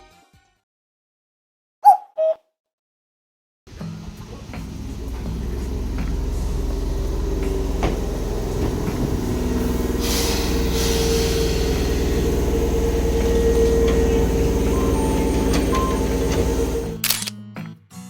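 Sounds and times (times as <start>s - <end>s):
train rumble: 3.9s - 17.0s
sharp click: 17.0s - 17.4s.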